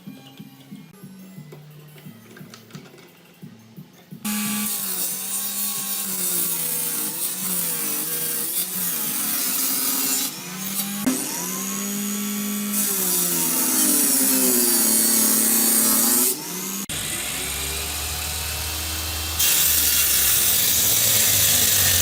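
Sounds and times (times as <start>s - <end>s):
electric power tool motor hum: 9.8s - 22.0s.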